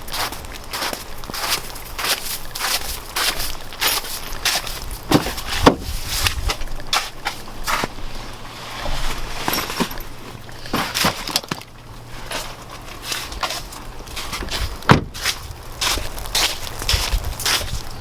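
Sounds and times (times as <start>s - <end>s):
footsteps crunching in snow: 0.0s - 11.4s, 12.1s - 18.0s.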